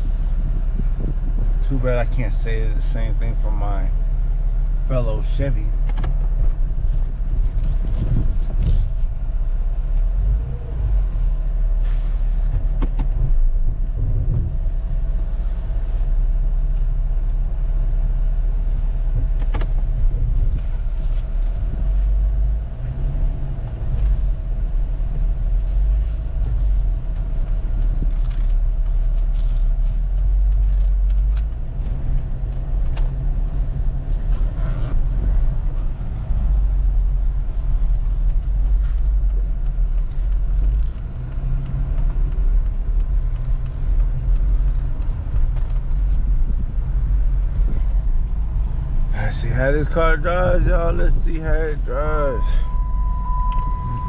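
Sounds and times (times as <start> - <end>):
car engine rumbling: 0.0 - 54.0
faint steady whine: 49.1 - 54.0.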